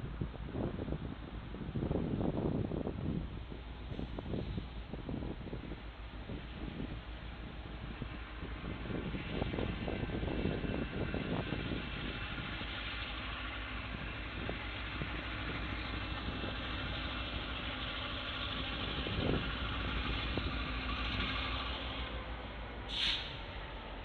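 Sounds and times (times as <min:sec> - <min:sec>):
freight train rumbling: 0:00.0 - 0:24.0.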